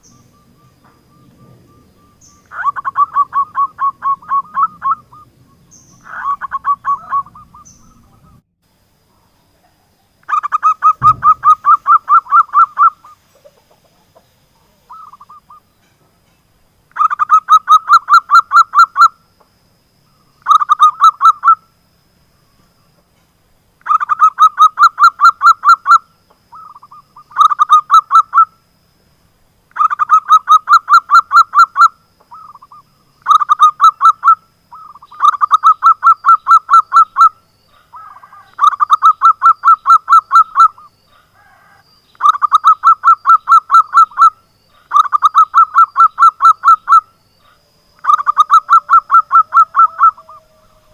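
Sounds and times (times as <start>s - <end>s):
dove cooing in fast bursts: 2.5s - 5.4s, 6.0s - 8.4s, 10.3s - 15.6s, 29.8s - 37.4s, 38.0s - 40.9s, 41.6s - 47.1s, 48.0s - 50.9s
low thump: 11.0s - 11.7s.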